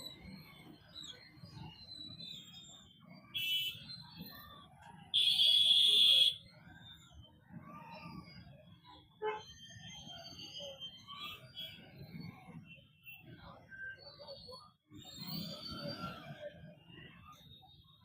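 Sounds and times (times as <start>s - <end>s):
vehicle horns honking: 5.2s - 6.4s.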